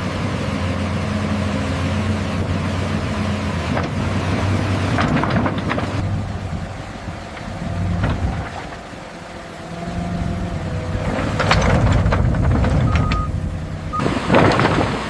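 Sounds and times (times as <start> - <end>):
excavator diesel engine running: 0.0 - 15.0
short beep: 12.9 - 13.3.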